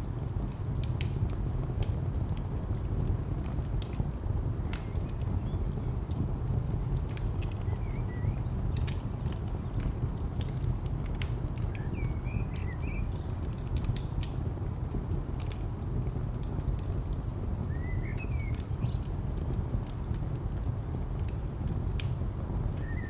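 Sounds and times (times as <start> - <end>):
wood fire crackling and popping: 0.0 - 23.0
distant traffic rumble: 0.3 - 23.0
small birds chirping: 4.6 - 6.2, 7.0 - 14.3, 17.6 - 20.7, 22.5 - 23.0.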